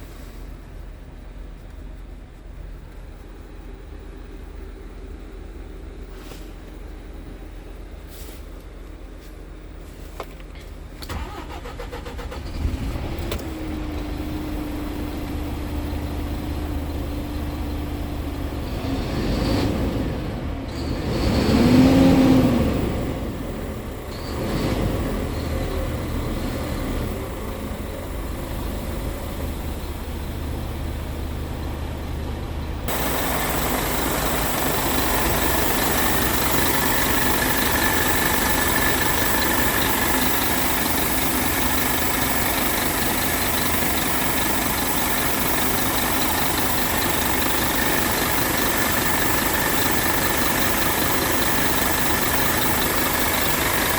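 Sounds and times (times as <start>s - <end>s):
diesel truck engine running: 0.0s - 53.9s
truck engine revving: 11.1s - 53.9s
faint high whine: 26.9s - 53.9s.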